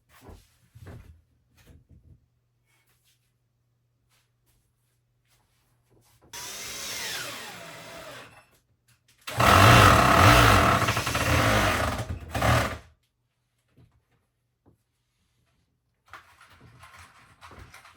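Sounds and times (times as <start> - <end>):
electric drill whirring: 6.4 - 8.4, 9.3 - 12.8.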